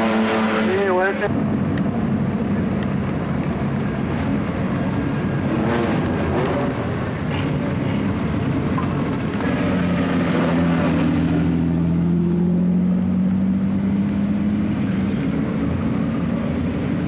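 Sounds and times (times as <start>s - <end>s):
racing car engines passing: 0.0s - 1.4s, 5.2s - 16.4s.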